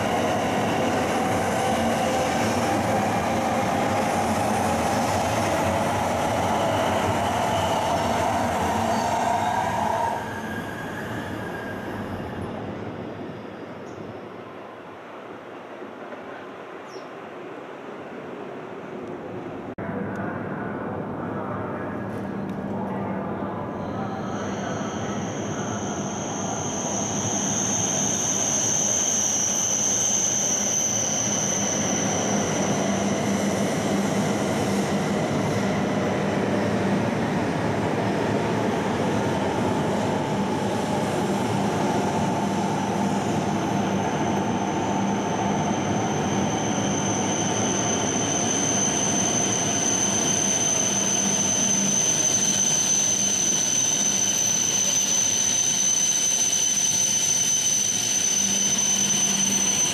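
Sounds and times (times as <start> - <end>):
train rushing rumble: 0.0 - 13.5, 17.4 - 54.9
thin high whine: 22.9 - 33.7.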